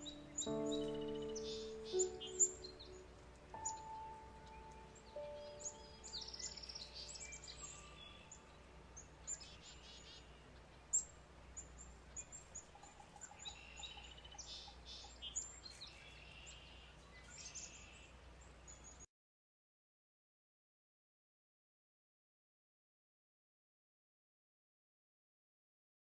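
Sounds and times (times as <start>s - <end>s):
light steady hiss: 0.0s - 19.1s
songbird chirps and trills: 0.0s - 19.1s.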